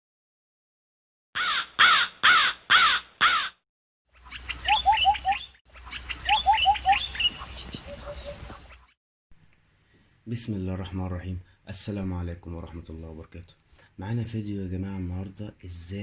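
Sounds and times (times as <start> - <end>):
crow cawing: 1.4 - 3.6
small birds chirping: 4.1 - 9.0.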